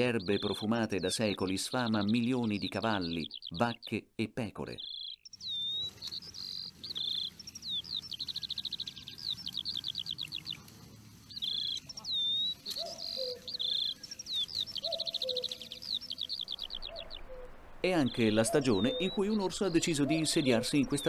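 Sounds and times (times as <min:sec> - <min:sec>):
songbird whistling and trilling: 0:00.0 - 0:03.7, 0:04.8 - 0:10.6, 0:11.3 - 0:21.0
faint lower bird call: 0:04.8 - 0:19.4.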